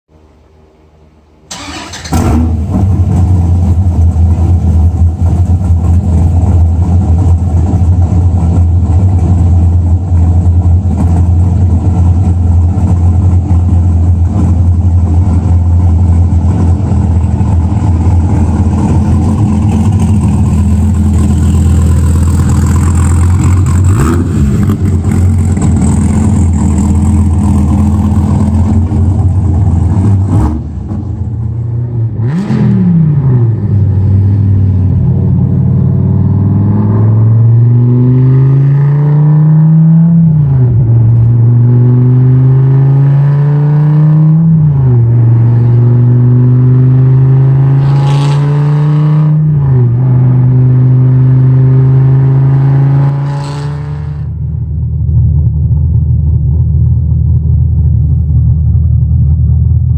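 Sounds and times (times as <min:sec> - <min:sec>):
car engine cranking and starting: 0:01.4 - 0:31.7
car engine idling loudly: 0:02.8 - 0:31.6, 0:54.5 - 0:59.9.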